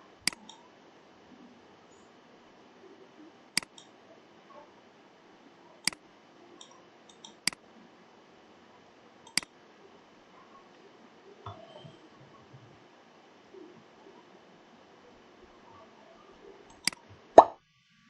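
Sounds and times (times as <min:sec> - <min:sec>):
computer mouse clicking: 0:00.2 - 0:00.6, 0:03.6 - 0:03.9, 0:06.6 - 0:07.6, 0:09.2 - 0:09.5, 0:16.7 - 0:17.5
faint ticks: 0:09.2 - 0:09.5.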